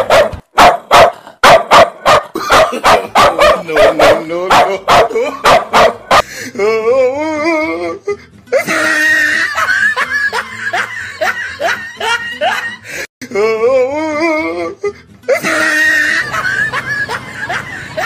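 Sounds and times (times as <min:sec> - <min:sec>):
comedic laughter sound effect: 0:02.3 - 0:03.4, 0:05.0 - 0:06.0, 0:08.5 - 0:12.9, 0:15.3 - 0:18.0
music: 0:05.3 - 0:18.0.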